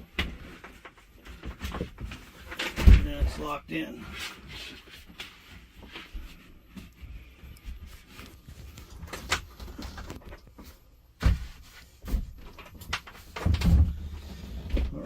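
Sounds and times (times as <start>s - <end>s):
knocks and clunks: 0.0s - 3.6s, 11.2s - 15.0s.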